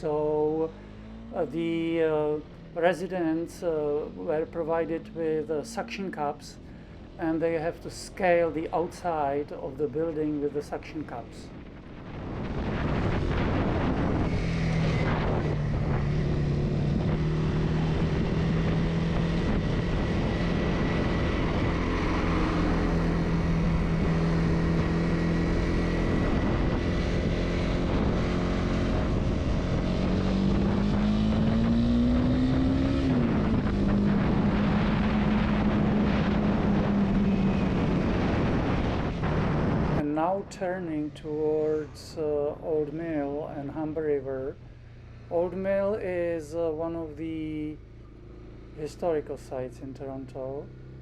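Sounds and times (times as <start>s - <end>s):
road noise: 0.0s - 51.0s
wind noise: 8.4s - 44.3s.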